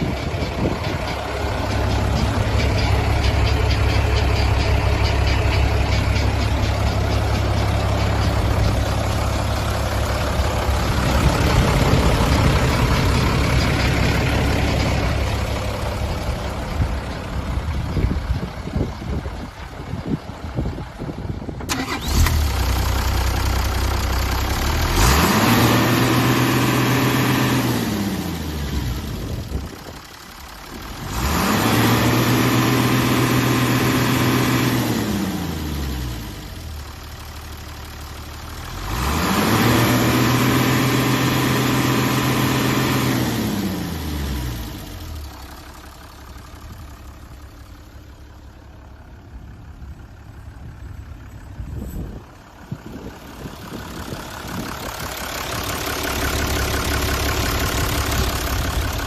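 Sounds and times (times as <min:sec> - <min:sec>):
diesel truck engine idling and revving: 0:00.0 - 0:59.0.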